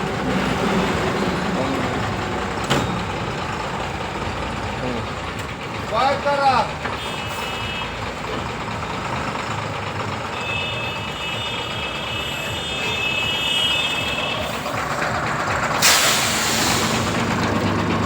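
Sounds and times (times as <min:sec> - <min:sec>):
truck engine running: 0:00.0 - 0:18.0
sudden loud hiss: 0:15.8 - 0:17.3.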